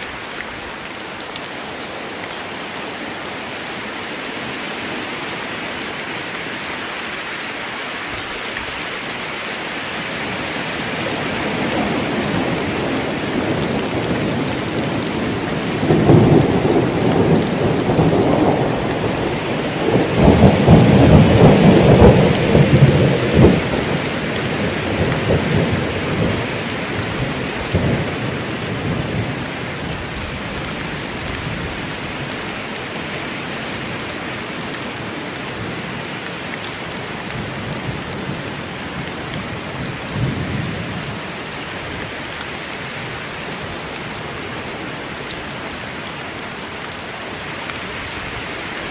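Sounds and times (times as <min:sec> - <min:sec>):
steady rain falling: 0:00.0 - 0:48.9
rolling thunder: 0:11.4 - 0:29.5.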